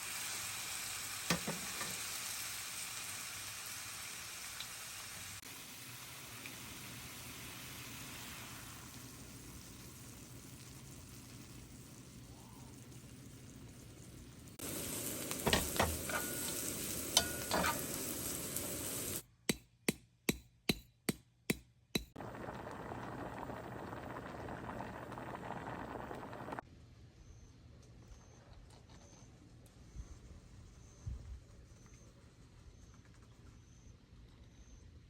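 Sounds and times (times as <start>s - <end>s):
food sizzling in a pan: 0.0s - 19.2s, 22.2s - 26.6s
metal utensil scraping a pan: 15.4s - 18.4s.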